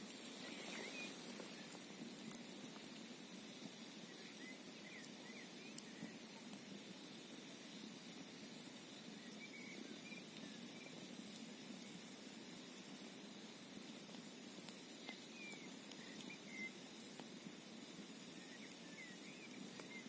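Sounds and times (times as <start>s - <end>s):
campfire crackling and popping: 0.0s - 20.0s
wind: 0.0s - 20.0s.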